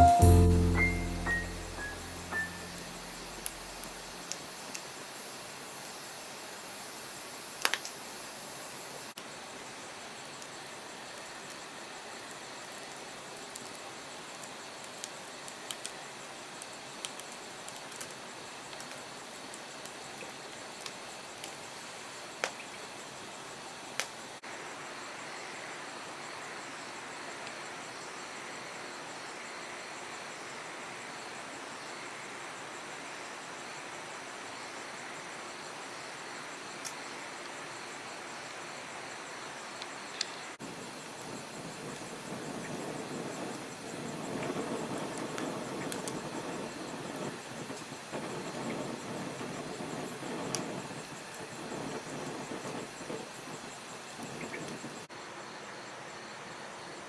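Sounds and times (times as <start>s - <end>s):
campfire crackling and popping: 0.2s - 6.0s, 7.5s - 24.4s, 40.6s - 55.1s.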